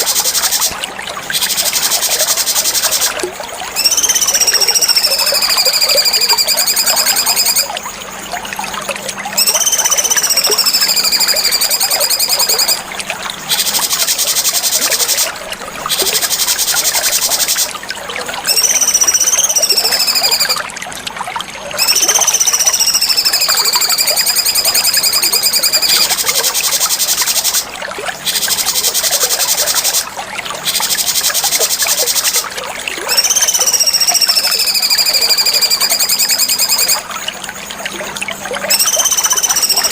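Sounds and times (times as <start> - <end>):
bulbul singing: 3.8 - 8.0, 9.3 - 12.8, 18.5 - 20.6, 21.8 - 32.5, 33.1 - 37.0, 38.6 - 39.9.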